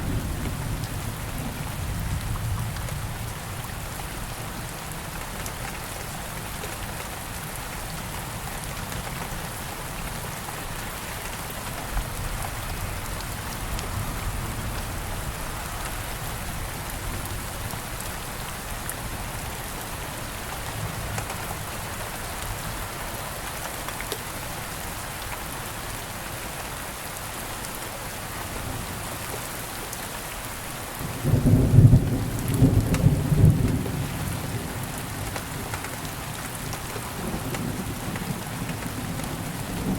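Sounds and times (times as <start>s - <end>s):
steady rain falling: 0.0s - 39.9s
low rumble of thunder: 31.0s - 39.9s.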